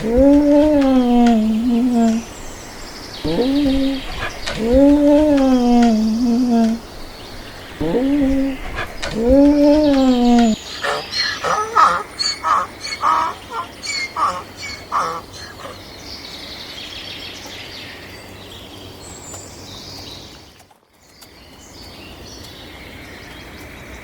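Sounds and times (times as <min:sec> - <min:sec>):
chicken calling: 0:00.0 - 0:15.8
farmyard background: 0:00.0 - 0:16.0
small birds chirping: 0:00.0 - 0:24.0.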